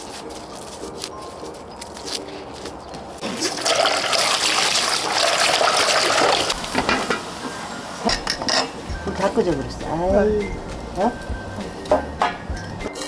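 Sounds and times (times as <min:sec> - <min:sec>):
water rushing: 0:03.2 - 0:06.8.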